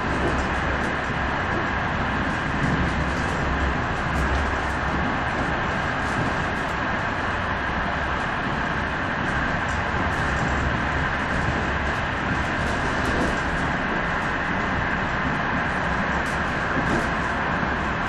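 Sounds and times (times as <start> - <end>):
train rumbling inside carriage: 0.0 - 18.0.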